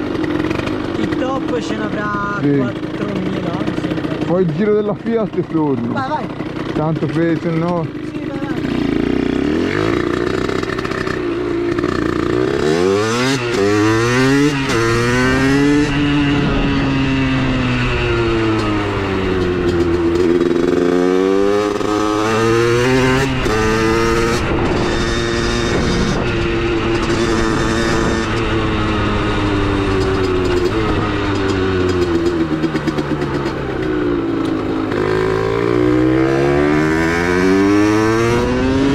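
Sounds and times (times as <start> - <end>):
two-stroke motorcycle engine revving: 0.0 - 38.9.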